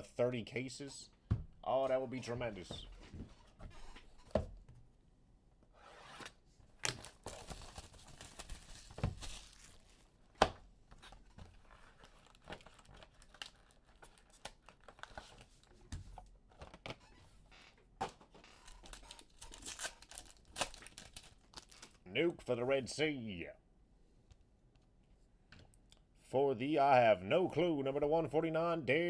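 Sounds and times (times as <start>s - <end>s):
card packs torn and crinkled: 6.8s - 10.0s, 11.5s - 15.7s, 18.5s - 22.0s
cards rustling and snapping: 11.0s - 15.8s, 18.1s - 22.0s.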